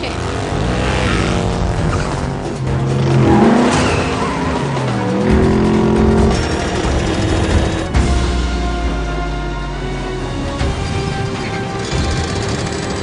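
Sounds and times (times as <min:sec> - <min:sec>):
tyres skidding and squealing: 0:00.0 - 0:08.2
background music: 0:00.0 - 0:13.0
race car engines revving: 0:00.0 - 0:13.0.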